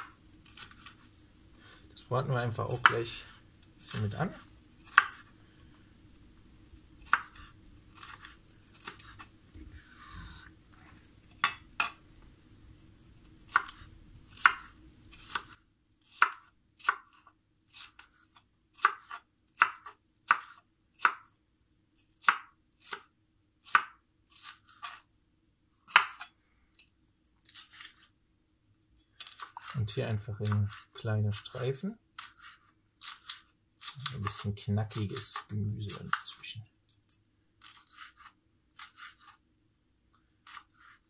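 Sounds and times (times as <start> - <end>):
knife chopping pepper on board: 18.8 - 21.2, 30.4 - 31.4.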